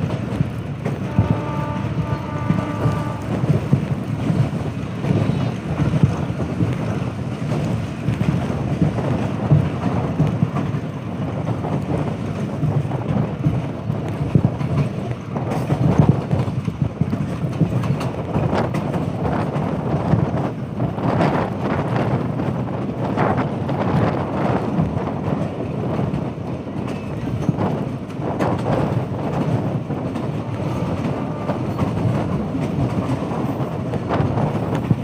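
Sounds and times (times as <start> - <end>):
train rumbling: 0.0 - 35.0
wind noise on microphone: 0.0 - 35.0.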